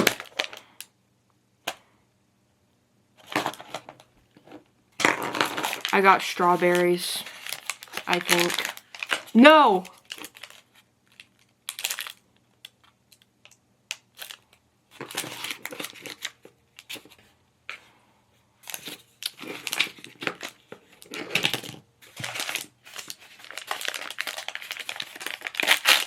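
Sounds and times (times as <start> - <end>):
plastic packaging crinkling and tearing: 0.0 - 0.7, 5.0 - 17.2, 18.6 - 26.0.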